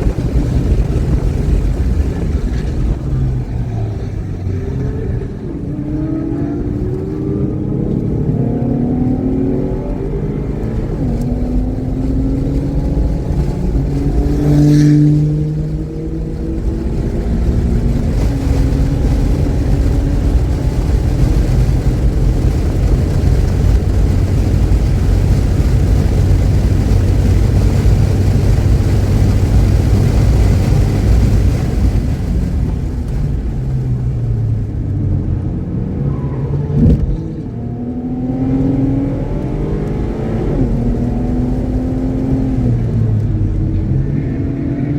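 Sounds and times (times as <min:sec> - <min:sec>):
race car engine accelerating: 0:00.0 - 0:44.9
road and wind noise: 0:00.0 - 0:44.9.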